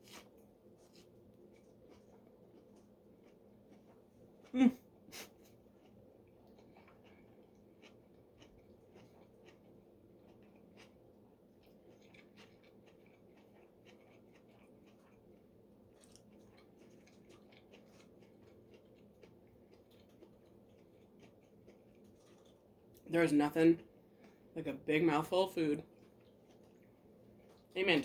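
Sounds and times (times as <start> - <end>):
low steady hum: 0.0 - 28.0
chewing mouth clicks: 11.6 - 15.2, 16.0 - 22.6.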